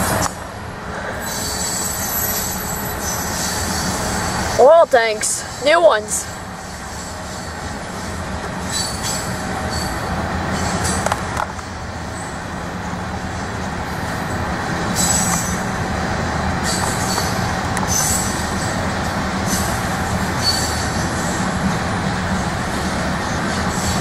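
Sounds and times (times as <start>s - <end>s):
freight train wheels rumbling on rail: 0.0s - 24.0s
high wheel squeals: 1.1s - 11.1s, 14.1s - 15.7s, 16.6s - 18.8s, 19.4s - 21.5s.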